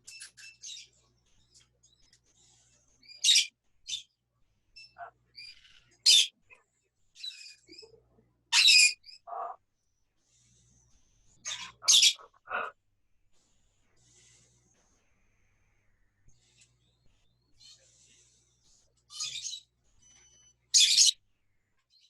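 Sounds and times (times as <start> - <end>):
parrots squawking and chirping: 3.0 - 4.0, 4.8 - 6.4, 8.5 - 9.6, 11.4 - 12.7, 19.1 - 21.2
soft parrot calls: 11.4 - 12.7, 20.7 - 21.2.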